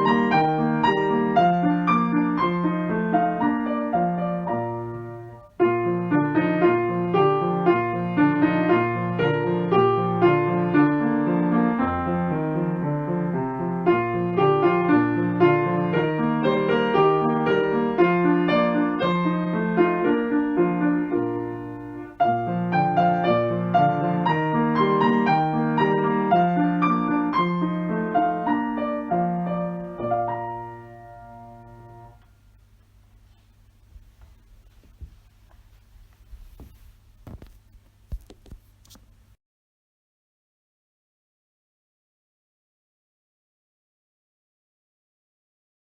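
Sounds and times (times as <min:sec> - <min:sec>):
gentle piano music: 0:00.0 - 0:32.4.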